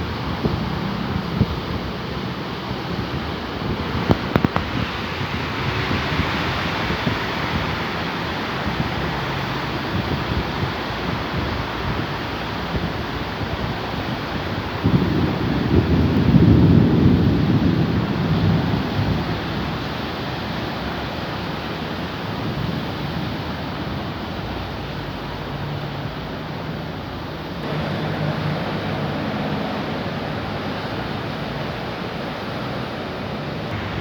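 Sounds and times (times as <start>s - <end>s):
low rumble of thunder: 0.0s - 24.8s, 33.6s - 34.0s
heavy rain pouring: 0.0s - 34.0s.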